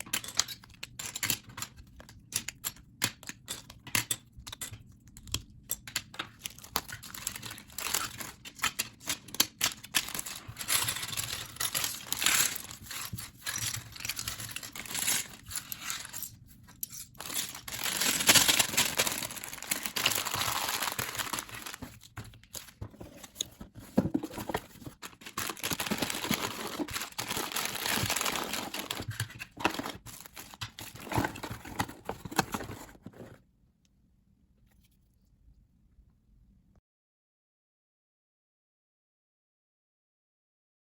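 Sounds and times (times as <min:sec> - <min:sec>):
plastic bags crinkling: 0:06.5 - 0:16.3, 0:17.1 - 0:33.2.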